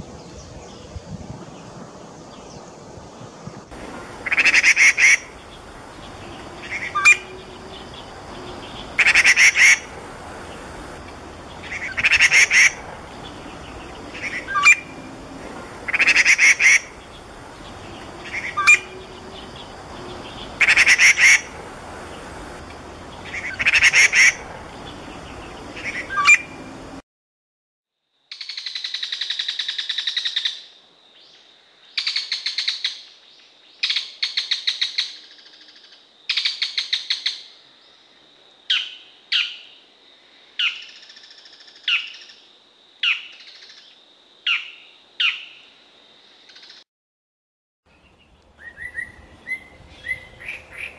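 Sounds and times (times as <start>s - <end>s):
bird giving harsh calls: 4.2s - 5.4s, 8.9s - 9.9s, 11.6s - 12.8s, 15.9s - 17.0s, 20.6s - 21.5s.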